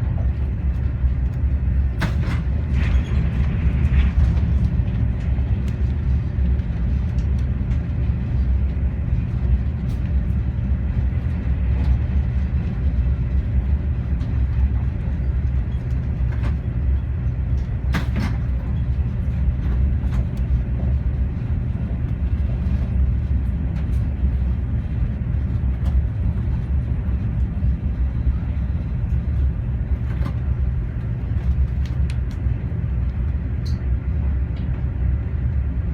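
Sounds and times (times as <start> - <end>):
train low rumble: 0.0 - 35.9.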